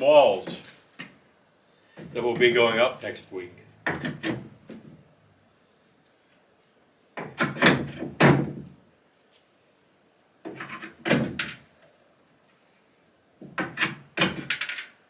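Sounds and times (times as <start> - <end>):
wood knocking and clunking: 3.8 - 5.0.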